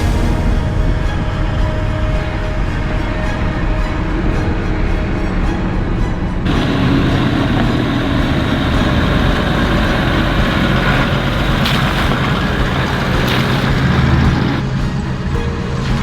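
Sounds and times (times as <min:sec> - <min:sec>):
road noise: 0:00.0 - 0:16.0
vehicle engine: 0:06.4 - 0:16.0.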